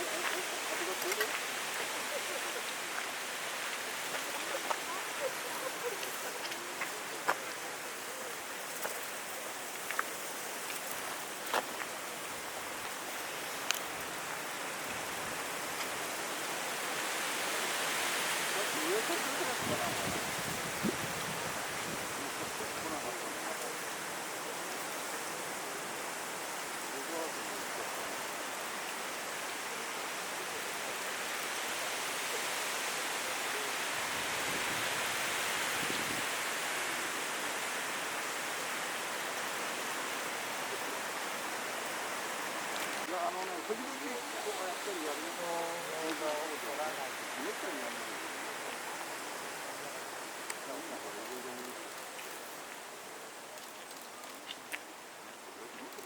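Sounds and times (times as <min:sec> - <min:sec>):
strong wind rushing through trees: 0:00.0 - 0:56.0
strong wind blowing: 0:19.2 - 0:22.9, 0:33.9 - 0:36.8.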